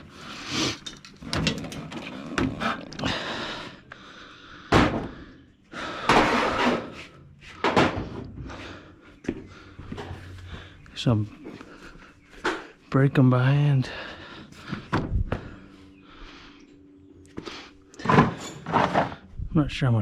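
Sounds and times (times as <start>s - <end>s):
metal tools knocking: 0.7s - 2.1s.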